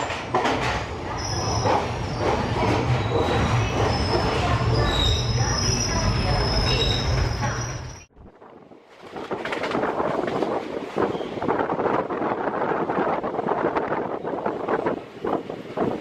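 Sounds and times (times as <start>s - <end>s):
train wheels rumbling: 0.0s - 8.1s
high-pitched wheel squeal: 3.0s - 8.1s
wind buffeting microphone: 8.2s - 16.0s.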